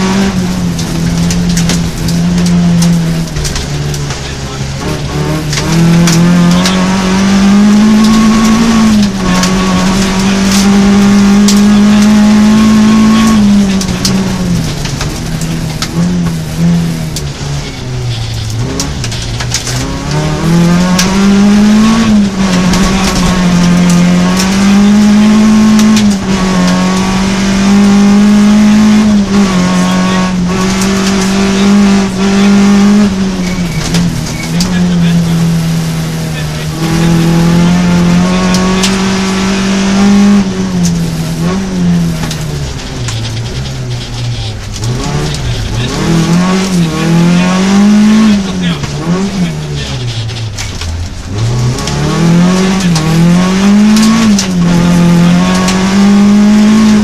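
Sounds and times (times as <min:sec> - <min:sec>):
rally car engine revving: 0:00.0 - 0:57.0
road noise: 0:00.0 - 0:57.0.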